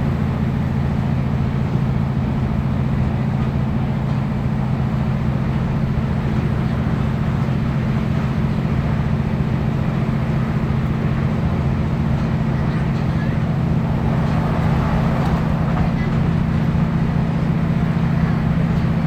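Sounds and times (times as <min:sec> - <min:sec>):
diesel engine low drone: 0:00.0 - 0:19.0
train rumble: 0:00.0 - 0:19.0.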